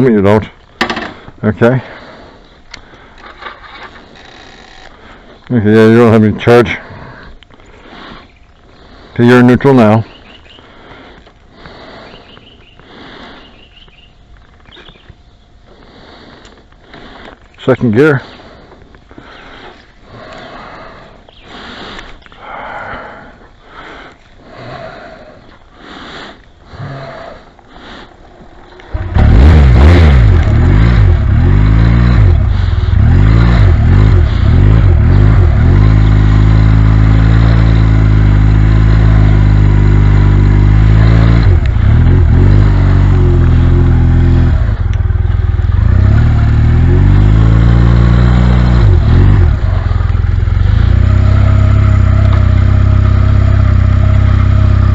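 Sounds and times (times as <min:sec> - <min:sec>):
motorcycle engine revving: 0:28.7 - 0:54.9.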